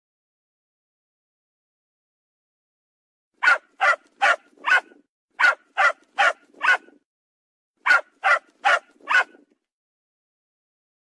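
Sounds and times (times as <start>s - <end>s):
dog barking: 3.4s - 7.0s, 7.8s - 9.5s.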